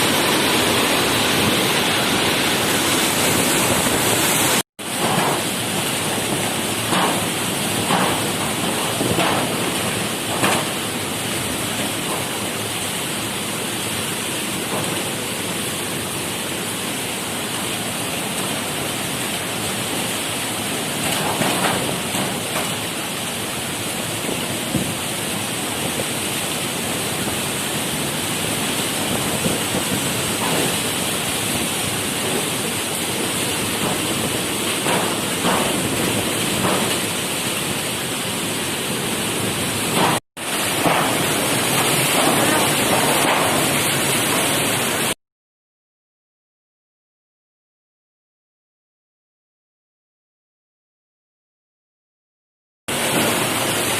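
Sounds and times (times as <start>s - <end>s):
heavy rain: 0.0s - 45.2s, 52.9s - 53.9s
rain spatters: 0.0s - 45.2s, 52.9s - 53.9s
wind: 0.0s - 45.2s, 52.9s - 53.9s.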